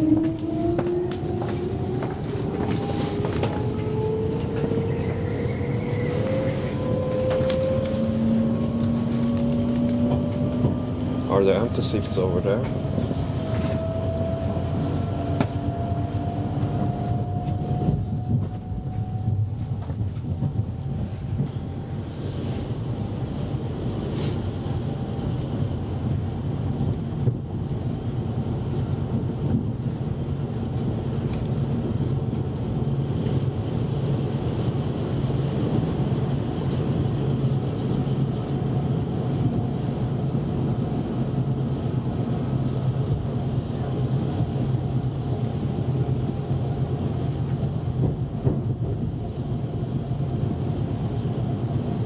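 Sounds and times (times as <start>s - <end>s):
faint rising whine: 0.0s - 19.6s
train wheels rumbling: 0.0s - 52.0s.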